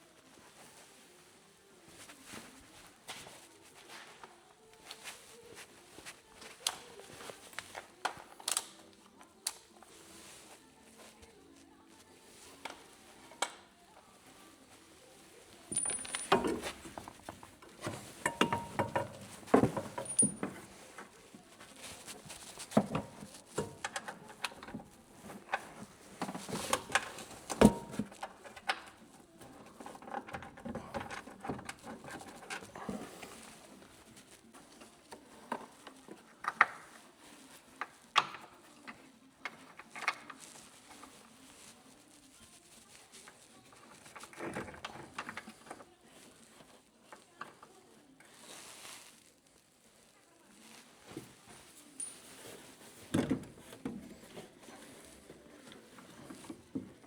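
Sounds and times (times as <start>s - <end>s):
metal parts and tools clinking: 15.7s - 17.2s, 18.0s - 20.7s.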